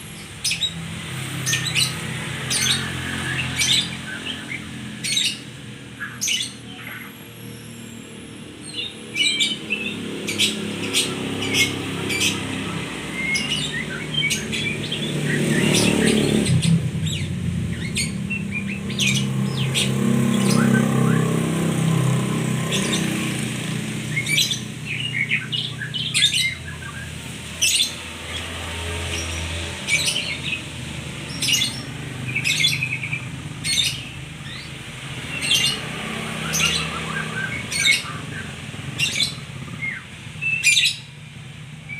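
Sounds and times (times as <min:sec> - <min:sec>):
vehicle engine hum: 0:00.0 - 0:41.9
songbird chirping and whistling: 0:01.5 - 0:21.4, 0:24.1 - 0:28.0, 0:31.3 - 0:41.1.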